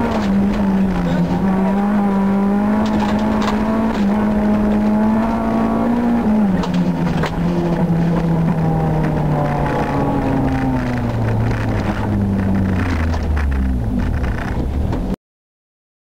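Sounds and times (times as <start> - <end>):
car engine at speed: 0.0 - 15.2.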